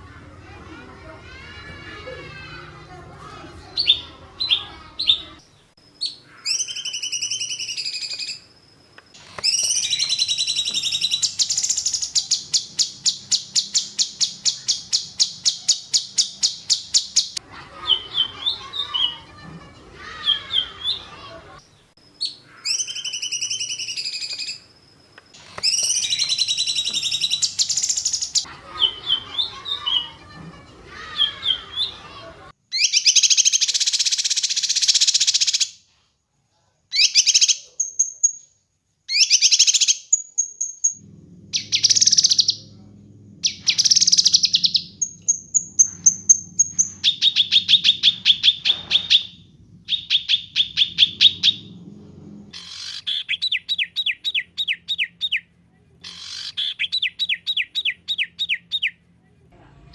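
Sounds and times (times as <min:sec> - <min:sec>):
rapid repeated bird notes: 0:02.3 - 0:05.4, 0:09.5 - 0:21.6, 0:25.7 - 0:32.5
low hum: 0:41.0 - 0:52.6.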